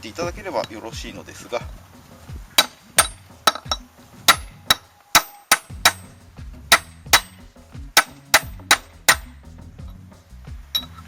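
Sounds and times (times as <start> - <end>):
hammer striking metal socket: 2.6 - 6.1, 8.0 - 9.3.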